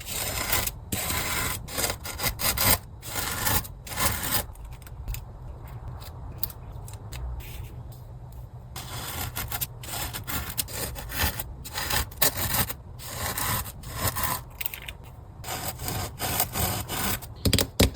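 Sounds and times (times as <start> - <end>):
hand scraping sand: 0.0 - 4.5, 8.8 - 14.5, 15.4 - 17.4.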